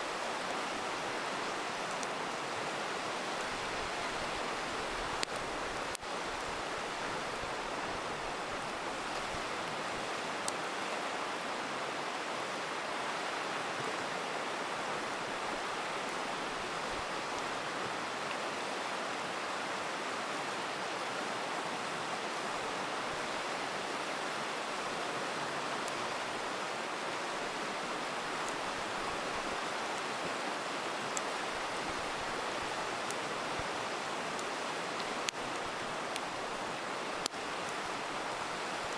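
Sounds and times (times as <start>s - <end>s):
river rushing: 0.0s - 38.9s
campfire crackling pops: 1.5s - 2.3s, 3.2s - 6.6s, 31.1s - 38.9s.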